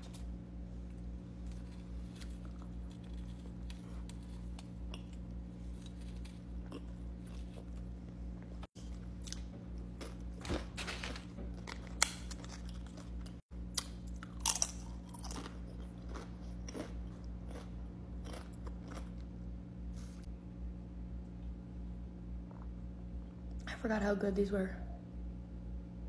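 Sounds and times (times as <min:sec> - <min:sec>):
close chewing with mouth sounds: 0:00.8 - 0:10.6, 0:11.5 - 0:19.4.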